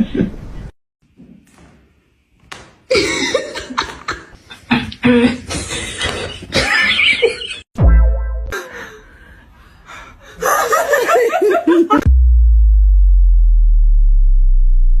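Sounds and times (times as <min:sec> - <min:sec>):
person laughing: 0:02.9 - 0:07.7, 0:10.4 - 0:12.1.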